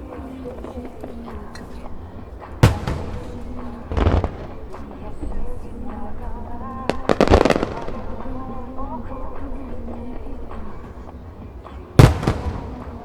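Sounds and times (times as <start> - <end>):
firework shell bursts: 0.0 - 13.0
pop music with singing: 0.0 - 13.0.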